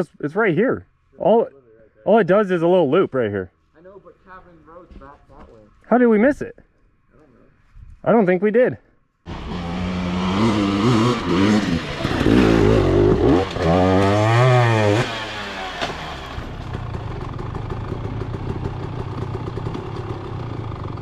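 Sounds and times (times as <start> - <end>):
dirt bike engine revving: 9.3 - 20.8.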